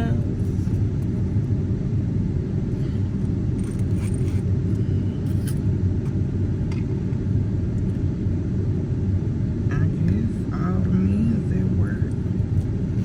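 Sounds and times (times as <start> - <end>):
car engine rumble inside cabin: 0.0 - 13.0.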